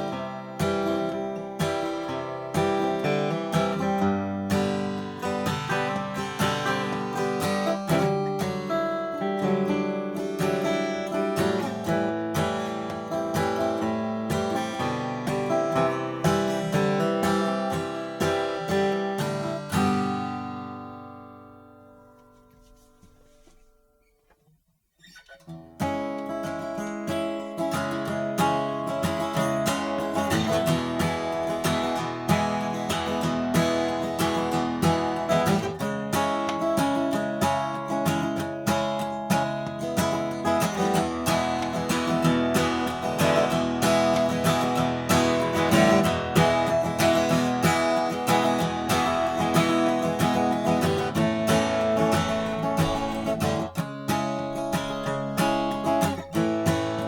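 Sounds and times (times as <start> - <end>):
strummed acoustic guitar: 0.0 - 57.0.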